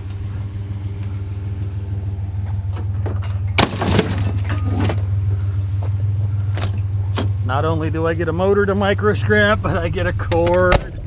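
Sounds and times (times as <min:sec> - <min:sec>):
pickup truck engine running: 0:00.0 - 0:11.0
scrap metal clattering: 0:02.8 - 0:05.1.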